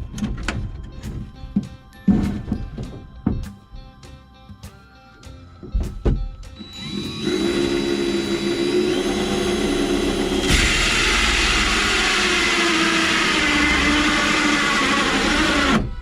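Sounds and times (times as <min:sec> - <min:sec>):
power tool cutting fiberglass: 0:06.6 - 0:16.0.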